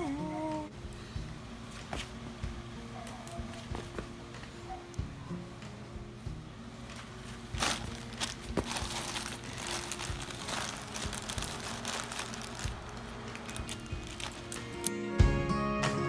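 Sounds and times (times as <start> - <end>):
plastic packaging crinkling: 6.9 - 14.9.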